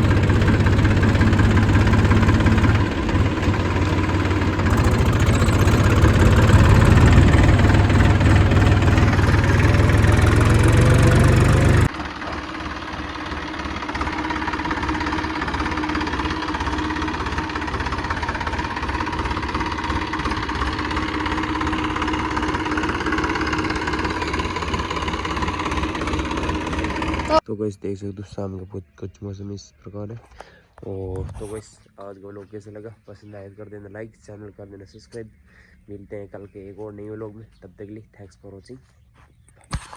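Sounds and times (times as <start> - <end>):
engine running: 0.0 - 27.4.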